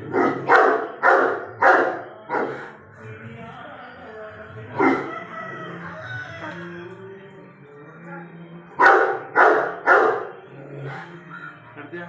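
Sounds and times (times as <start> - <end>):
dog barking: 0.0 - 2.7, 4.8 - 5.3, 8.8 - 11.0
background music: 0.0 - 12.0.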